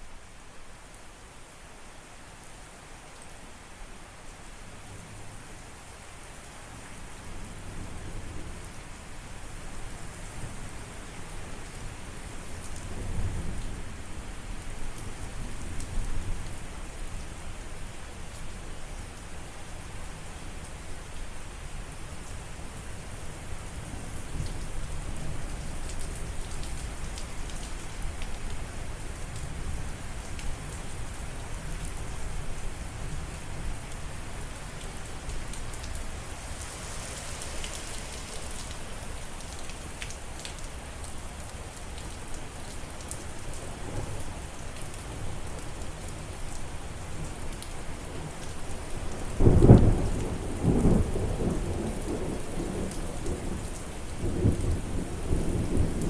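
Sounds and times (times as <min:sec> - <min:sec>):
steady rain falling: 0:00.0 - 0:56.0
thunder clap and rumble: 0:49.4 - 0:53.6.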